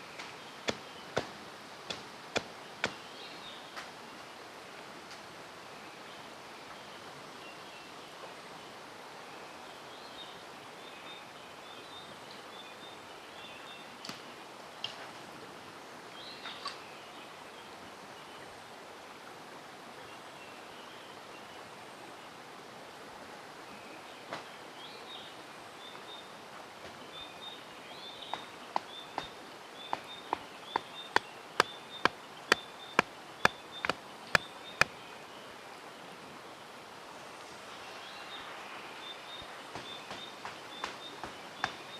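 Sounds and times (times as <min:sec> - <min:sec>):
birds chirping: 0:00.0 - 0:03.8, 0:27.0 - 0:35.4
mountain stream rushing: 0:00.0 - 0:07.2.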